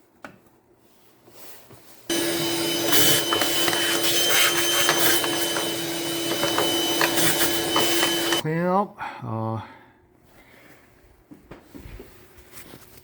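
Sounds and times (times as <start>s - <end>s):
vacuum cleaner running: 2.1s - 8.4s.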